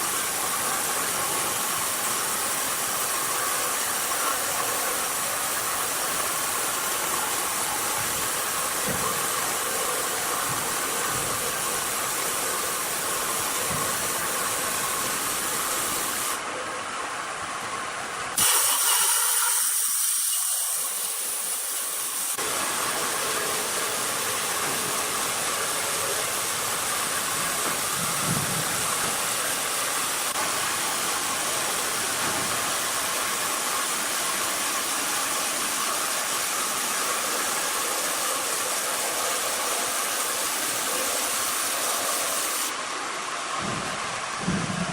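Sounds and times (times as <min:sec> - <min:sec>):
sawmill machinery hissing: 0:00.0 - 0:44.9.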